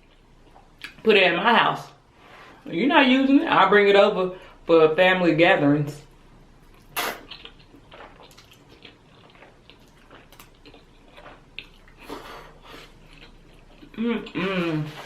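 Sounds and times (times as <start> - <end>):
person chewing and smacking: 0.0 - 1.0, 6.7 - 15.0.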